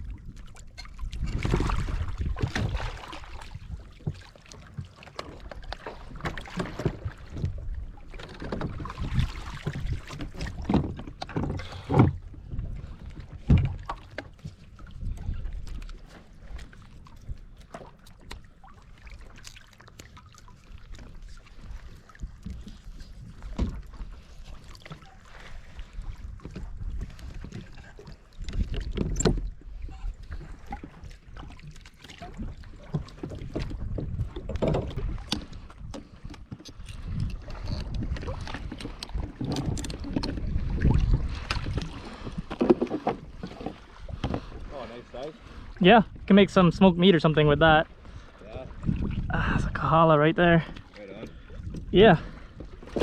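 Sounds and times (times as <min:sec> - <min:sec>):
wind buffeting microphone: 0:00.0 - 0:04.1, 0:14.6 - 0:17.6, 0:32.2 - 0:42.6, 0:43.2 - 0:53.0
water slapping against kayak hull: 0:00.0 - 0:53.0.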